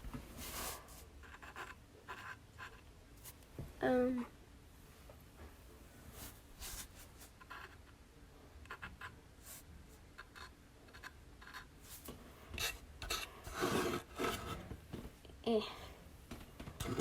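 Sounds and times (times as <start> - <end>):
paintbrush strokes on wood: 6.1 - 7.6.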